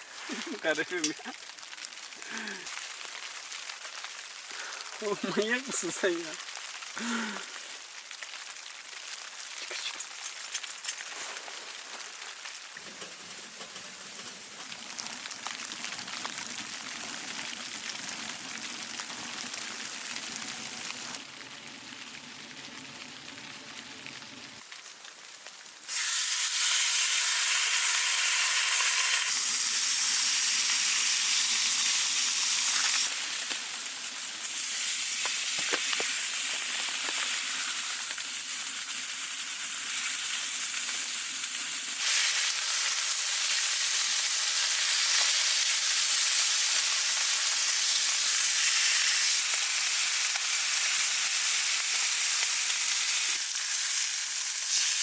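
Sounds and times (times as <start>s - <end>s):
food frying hiss: 0.0s - 10.7s, 11.3s - 55.0s
loud steady sizzle: 0.0s - 10.8s, 11.4s - 55.0s
faint crackles: 0.0s - 26.1s, 31.7s - 43.9s.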